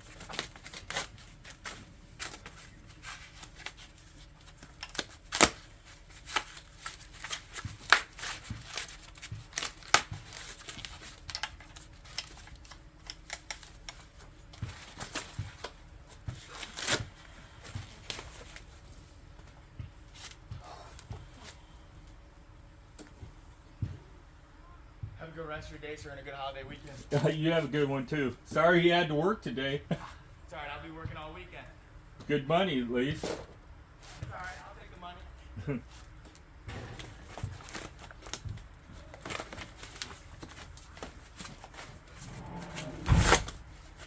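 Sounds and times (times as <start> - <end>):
handling clicks and rustles: 0.0 - 21.6, 36.0 - 44.0
loud knocks: 36.7 - 38.1, 42.2 - 43.8.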